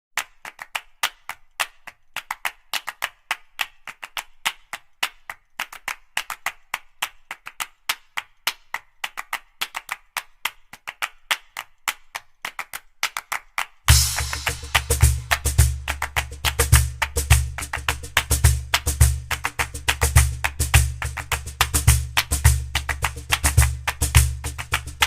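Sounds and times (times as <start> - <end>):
rapid sharp dry taps: 13.9 - 25.0.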